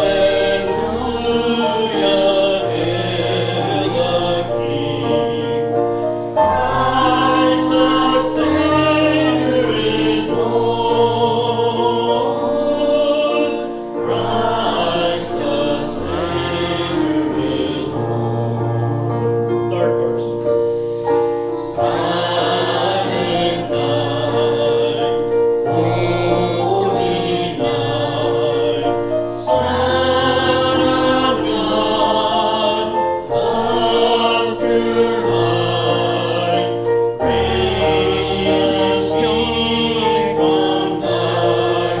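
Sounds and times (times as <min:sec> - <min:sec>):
group singing a hymn: 0:00.0 - 0:42.0
instrumental accompaniment: 0:00.0 - 0:42.0.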